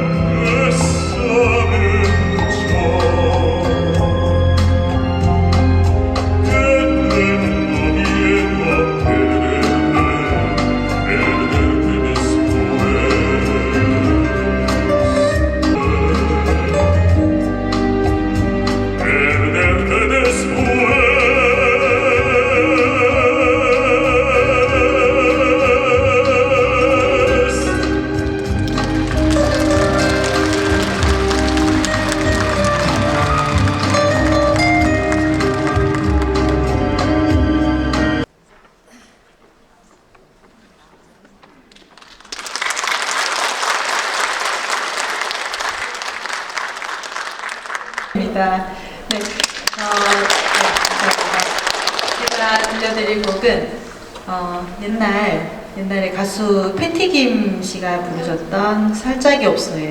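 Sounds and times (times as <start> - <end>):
instrumental backing: 27.5 - 38.3
audience applauding: 27.8 - 37.5, 41.7 - 48.2, 49.1 - 54.2.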